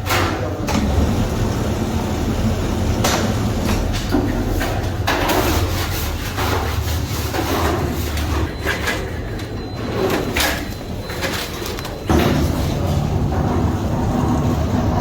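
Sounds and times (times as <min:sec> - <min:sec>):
machinery low hum: 0:00.2 - 0:15.0.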